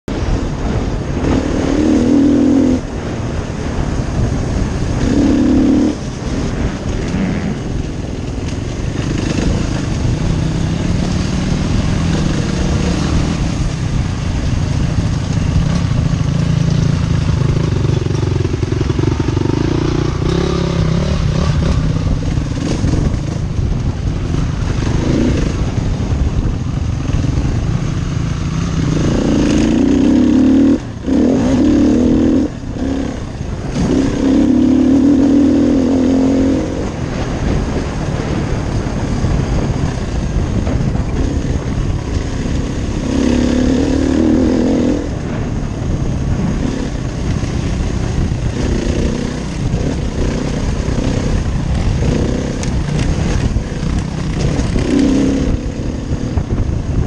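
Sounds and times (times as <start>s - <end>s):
motorcycle engine revving: 0.1s - 57.0s.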